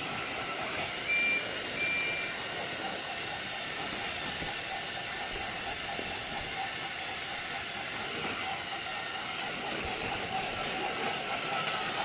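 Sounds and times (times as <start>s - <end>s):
train engine running: 0.0s - 12.0s.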